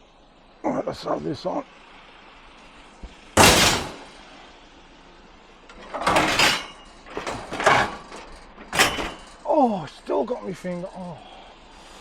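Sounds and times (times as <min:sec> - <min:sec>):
metal bed frame banging: 0:03.4 - 0:04.2, 0:05.7 - 0:09.4.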